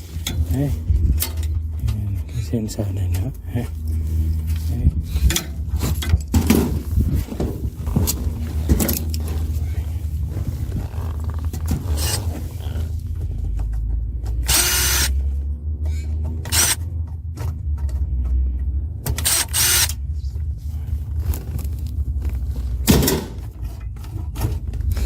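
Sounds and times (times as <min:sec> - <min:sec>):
steady low hum: 0:00.0 - 0:25.0
power drill bursts: 0:14.4 - 0:15.1, 0:16.5 - 0:16.8, 0:19.2 - 0:20.0.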